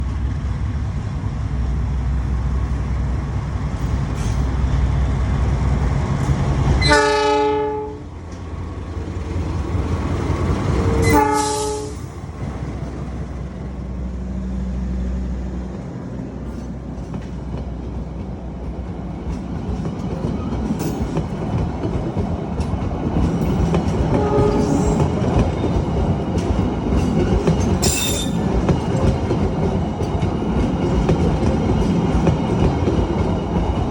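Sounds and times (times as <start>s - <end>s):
diesel locomotive engine rumble: 0.0s - 33.9s
train horn blasts: 6.8s - 8.1s, 10.8s - 12.1s, 24.1s - 25.0s.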